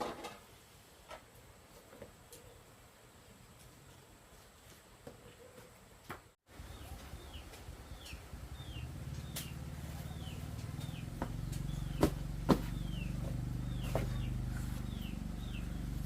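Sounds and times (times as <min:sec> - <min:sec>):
bird chirping: 0:06.5 - 0:16.0
low motor hum: 0:06.5 - 0:16.0.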